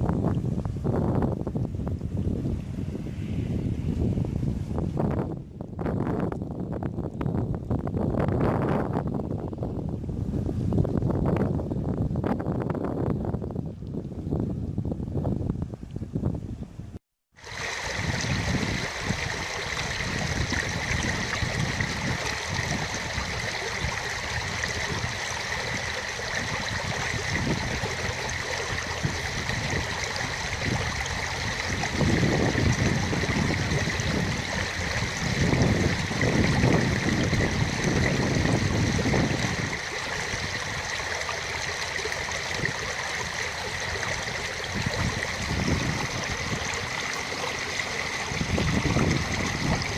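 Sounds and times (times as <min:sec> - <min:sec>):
wind on microphone: 0:00.0 - 0:49.9
running water: 0:17.4 - 0:49.9.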